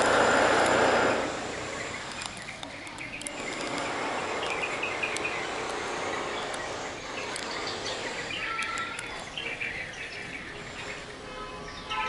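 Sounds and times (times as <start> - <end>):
outdoor background hiss: 0.0 - 12.0
small birds chirping: 0.0 - 12.0.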